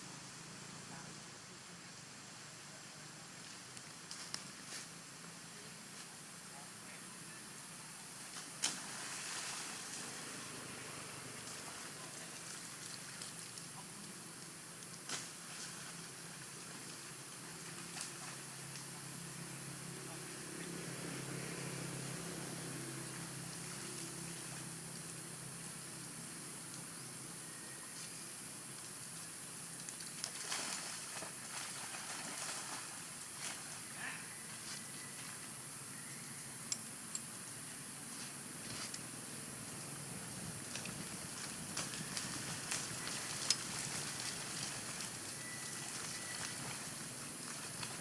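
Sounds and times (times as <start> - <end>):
pond water splashing and dripping: 0.0 - 48.0
steady background hiss: 0.0 - 48.0
monkeys splashing in water: 8.2 - 14.5, 29.8 - 35.4, 40.6 - 48.0.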